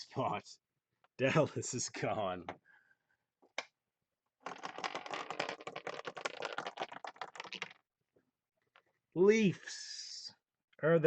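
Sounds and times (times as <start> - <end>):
chip clattering off pegs: 4.4 - 7.8.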